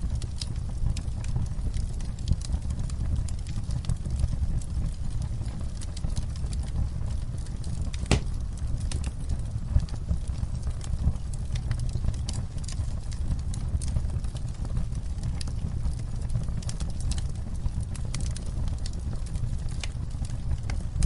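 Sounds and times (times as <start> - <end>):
campfire crackling: 0.0 - 21.0
sharp pop of burning wood: 8.0 - 8.4.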